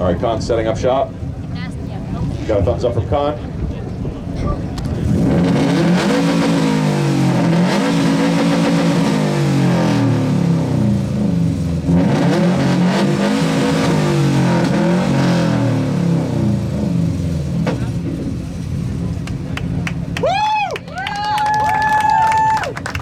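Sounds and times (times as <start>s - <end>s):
engine revving hard: 5.0s - 19.1s.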